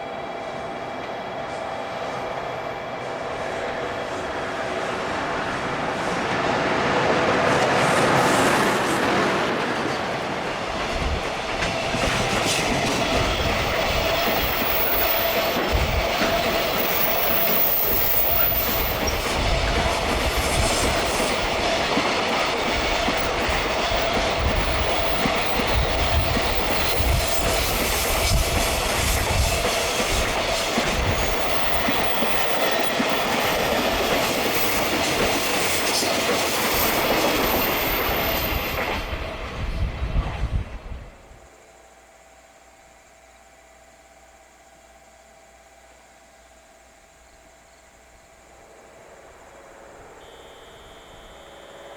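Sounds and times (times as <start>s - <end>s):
train wheels clattering: 1.0s - 39.6s
ringing tone from wheels: 49.0s - 51.9s.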